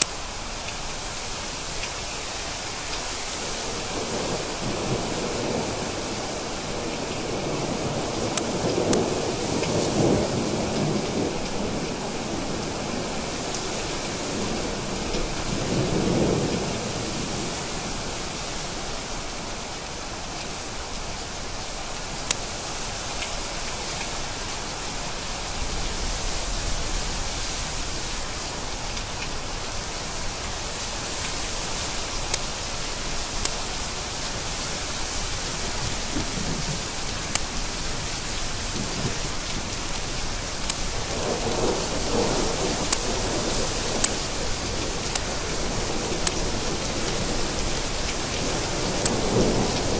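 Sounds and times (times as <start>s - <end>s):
raindrops ticking: 0.0s - 1.0s, 7.0s - 10.1s, 31.2s - 34.2s, 35.7s - 49.9s
heavy rain: 0.0s - 49.9s
thunder rumbling: 34.3s - 49.9s.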